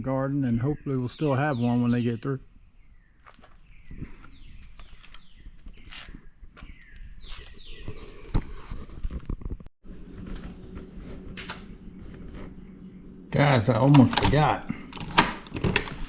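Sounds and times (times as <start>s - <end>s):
insects trilling: 0.0s - 8.3s
footsteps crunching outdoors: 3.1s - 13.2s
low steady hum: 9.9s - 16.0s.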